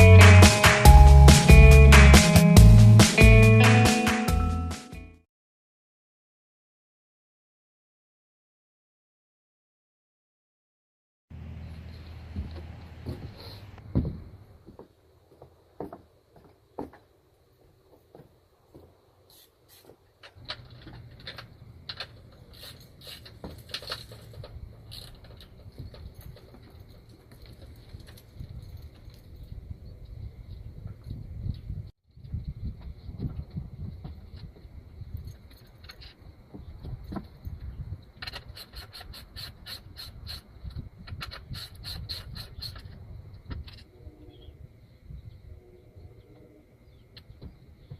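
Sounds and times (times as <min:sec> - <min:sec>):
metal tools clinking: 0:20.6 - 0:29.6.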